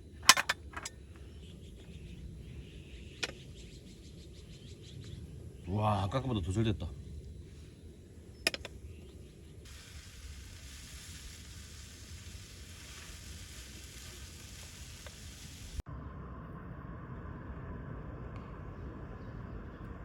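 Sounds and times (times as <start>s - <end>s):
food sizzling in a pan: 9.6s - 15.8s
low rumble: 10.0s - 20.0s.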